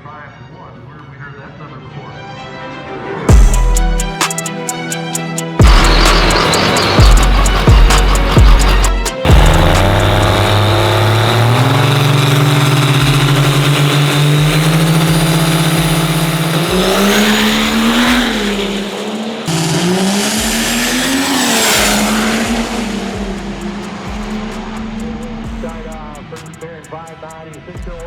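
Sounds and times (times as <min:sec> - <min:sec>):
diesel truck engine: 0:05.6 - 0:28.0
turbocharger whine: 0:05.6 - 0:28.0.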